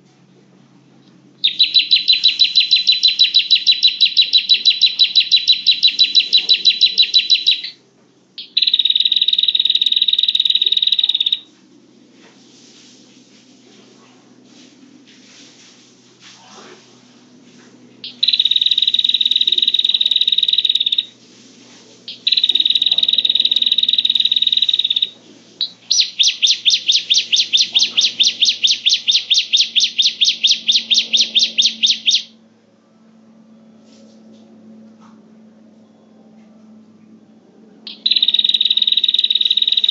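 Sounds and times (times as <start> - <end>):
bird buzzy trills: 1.4 - 7.8, 8.4 - 11.5, 18.0 - 21.2, 22.1 - 32.3, 37.9 - 39.9
rapid repeated bird notes: 1.4 - 7.8, 8.4 - 11.5, 18.0 - 21.3, 22.0 - 32.3, 37.9 - 39.9.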